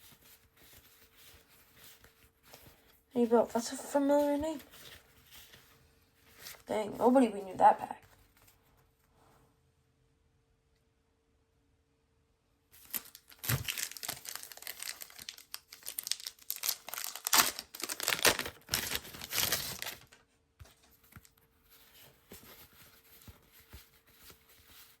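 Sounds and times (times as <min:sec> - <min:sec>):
card pack wrapper tearing: 0:12.8 - 0:20.2.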